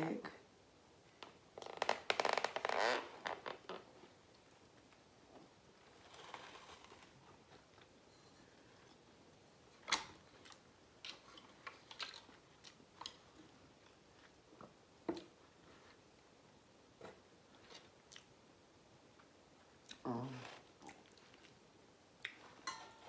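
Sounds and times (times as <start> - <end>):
person chewing food: 10.2 - 16.1, 17.2 - 18.4, 19.1 - 22.6.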